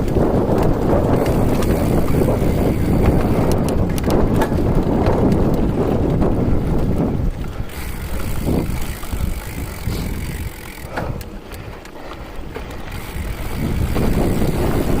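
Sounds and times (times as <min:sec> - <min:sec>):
faint clicks: 0:00.0 - 0:05.7, 0:08.9 - 0:14.2
wind noise on microphone: 0:00.0 - 0:15.0.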